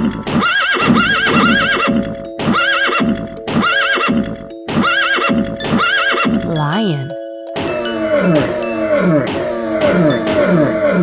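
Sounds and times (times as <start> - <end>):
bouncy children's music loop: 0.0 - 11.0
horse neighing: 0.4 - 6.5, 7.6 - 11.0.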